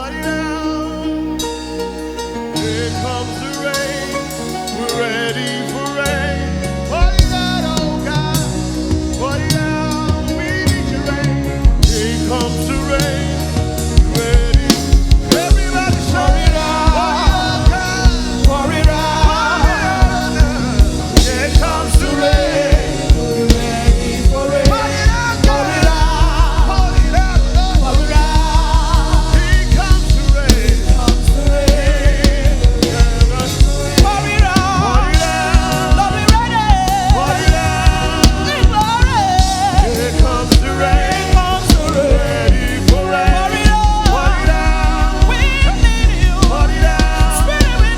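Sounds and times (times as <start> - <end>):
band playing: 0.0 - 47.9
vocal group singing: 0.0 - 47.9
drum beat: 11.5 - 47.9.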